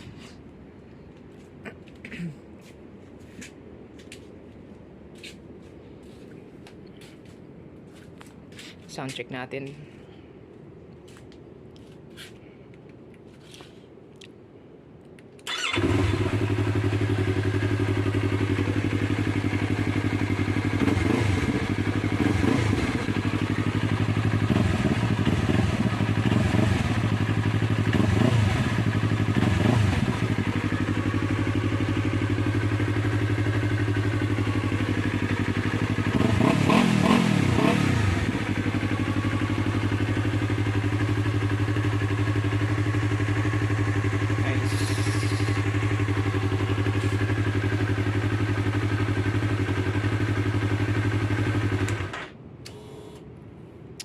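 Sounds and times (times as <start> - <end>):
engine revving: 15.5 - 18.4, 20.2 - 30.8, 35.8 - 38.6
motorcycle engine idling: 15.5 - 52.1.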